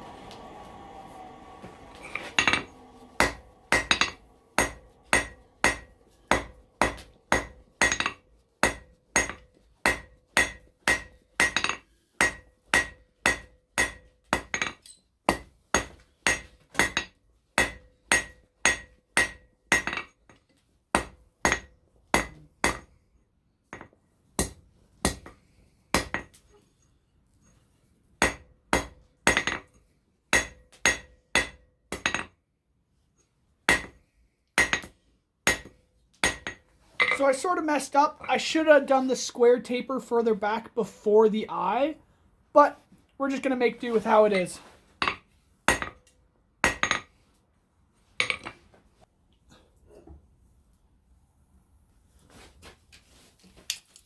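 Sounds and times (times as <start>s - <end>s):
hammer striking steel on anvil: 0.0s - 20.1s, 21.0s - 22.9s, 28.2s - 32.3s, 33.7s - 34.0s, 34.6s - 37.2s, 45.0s - 47.1s.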